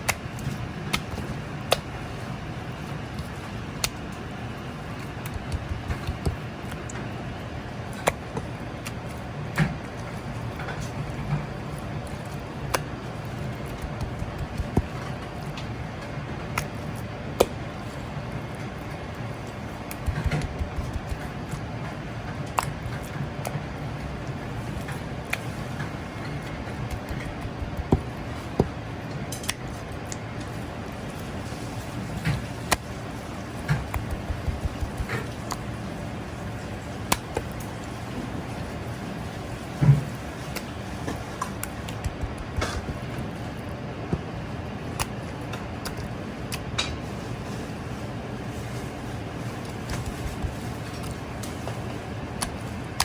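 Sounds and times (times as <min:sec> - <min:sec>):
kitchen hum: 0:00.0 - 0:53.0
sharp knocks and clicks: 0:05.2 - 0:06.9, 0:13.6 - 0:15.7, 0:19.9 - 0:21.6, 0:33.6 - 0:35.7, 0:40.6 - 0:43.2.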